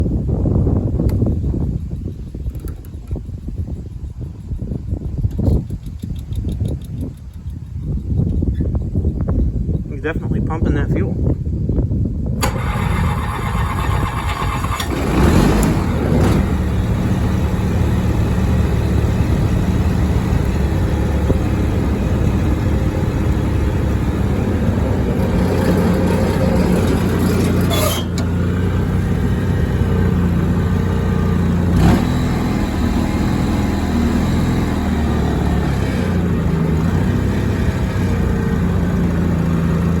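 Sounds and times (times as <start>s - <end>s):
lawn tractor engine starting: 12.4s - 40.0s.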